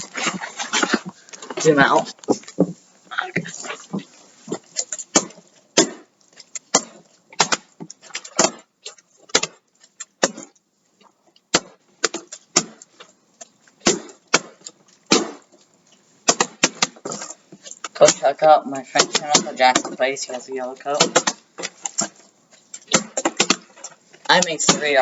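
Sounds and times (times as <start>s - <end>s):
plastic bottles landing knocks: 6.7s - 8.6s, 16.2s - 18.3s, 20.8s - 22.2s, 22.9s - 25.0s.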